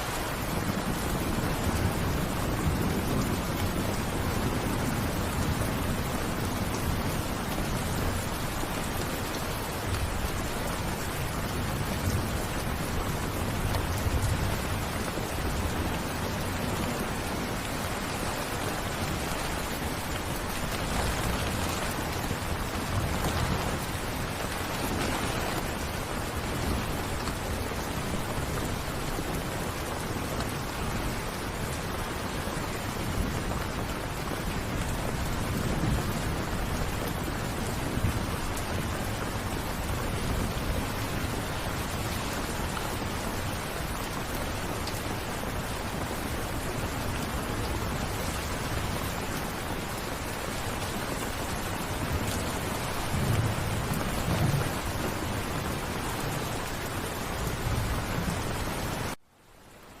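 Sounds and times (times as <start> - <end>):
steady rain falling: 0.0 - 60.0
thunder rumbling: 0.5 - 32.4, 50.9 - 59.2.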